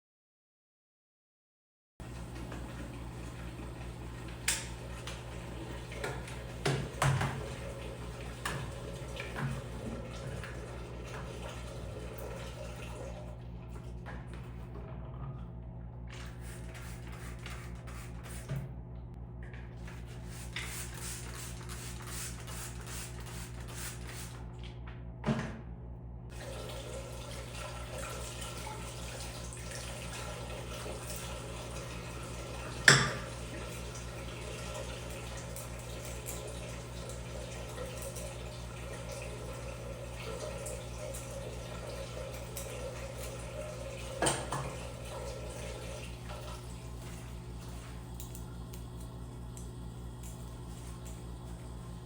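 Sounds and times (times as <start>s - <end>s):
tap water running into sink: 2.0s - 14.2s, 26.3s - 48.9s.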